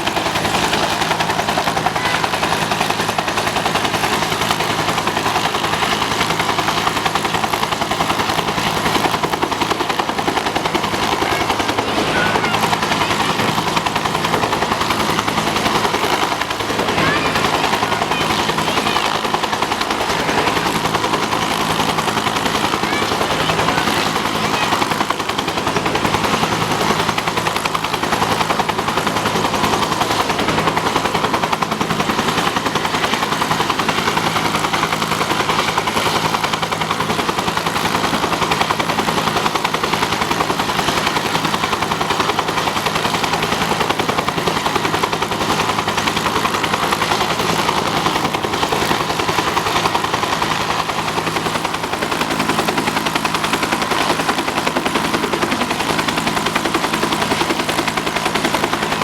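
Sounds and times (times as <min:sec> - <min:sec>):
turbine engine drone: 0:00.0 - 0:39.2
helicopter rotor chop: 0:00.0 - 0:59.0.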